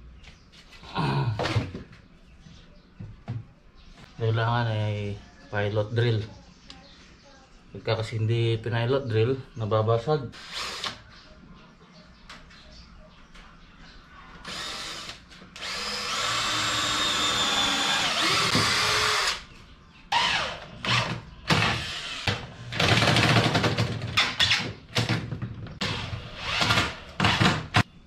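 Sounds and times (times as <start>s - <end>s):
cordless drill drilling: 10.4s - 11.0s, 14.4s - 19.4s, 20.2s - 22.4s, 25.8s - 27.8s
drill driving screws in bursts: 14.5s - 19.4s, 25.8s - 27.8s.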